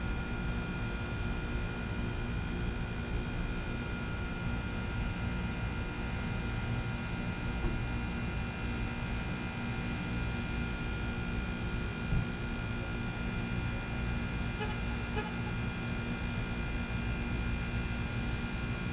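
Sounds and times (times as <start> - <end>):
heat pump humming: 0.1 - 18.9.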